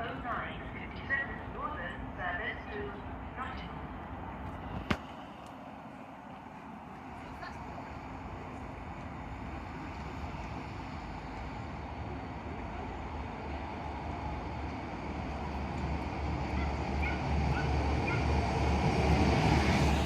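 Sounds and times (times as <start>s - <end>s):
passenger train rumble: 0.0s - 20.0s.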